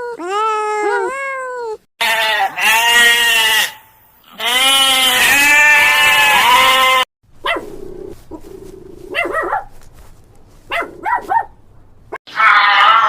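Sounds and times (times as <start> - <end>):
dog barking: 7.4 - 7.8, 9.0 - 9.8, 10.7 - 11.6.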